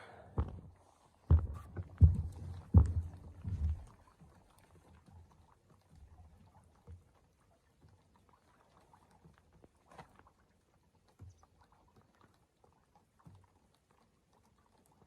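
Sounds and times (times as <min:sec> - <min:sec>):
soft thumps: 0:01.3 - 0:04.0.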